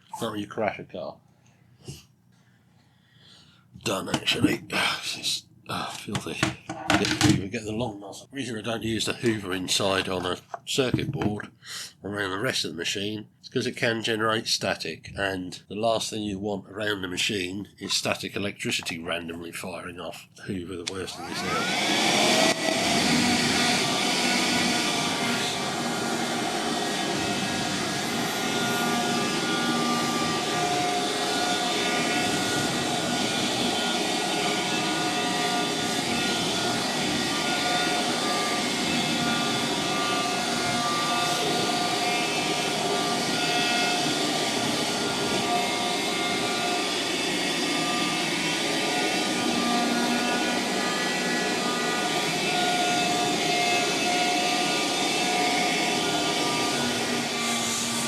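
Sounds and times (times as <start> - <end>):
vacuum cleaner motor whine: 20.9 - 58.0.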